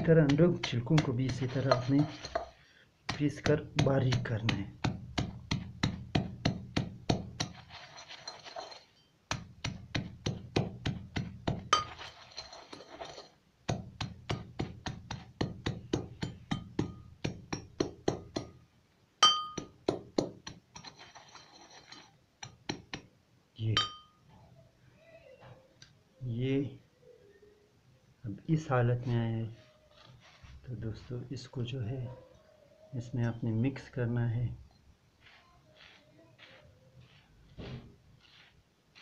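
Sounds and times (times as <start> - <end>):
pestle pounding in mortar: 0.0 - 7.9, 9.3 - 12.1, 13.0 - 18.6, 19.4 - 21.3, 22.4 - 23.1.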